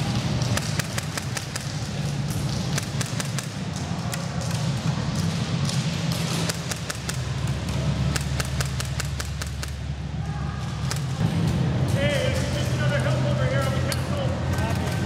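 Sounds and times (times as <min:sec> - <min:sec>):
pellet impacts: 0:00.0 - 0:09.9
low rumble: 0:00.0 - 0:15.0
airsoft gunfire snaps: 0:00.2 - 0:01.9, 0:02.5 - 0:04.7, 0:08.1 - 0:09.8.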